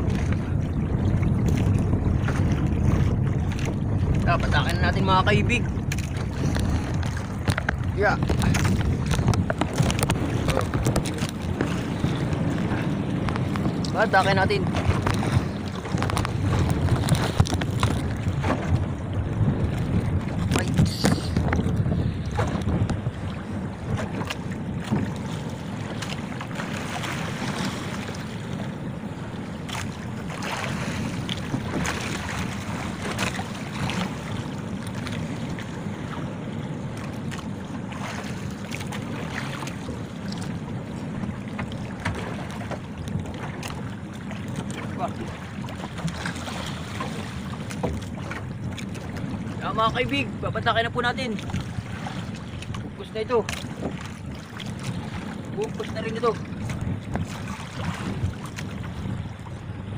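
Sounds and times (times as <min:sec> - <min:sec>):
knocks and clatters on boat: 0:00.0 - 0:59.9
sea water sloshing against boat: 0:00.0 - 0:59.9
wind buffeting microphone: 0:00.0 - 0:59.9.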